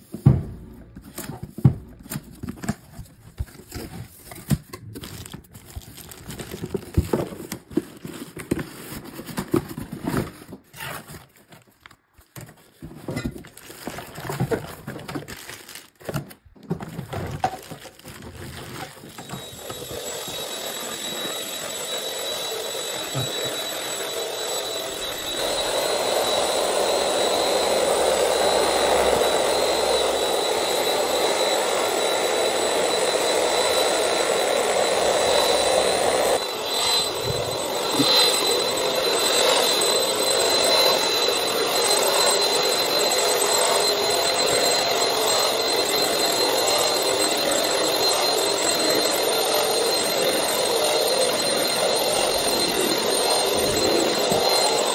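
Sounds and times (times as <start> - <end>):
cardboard rustling: 0.0 - 19.6
plastic packaging crinkling: 1.0 - 12.8, 13.4 - 19.4
vacuum motor whine: 18.4 - 54.9.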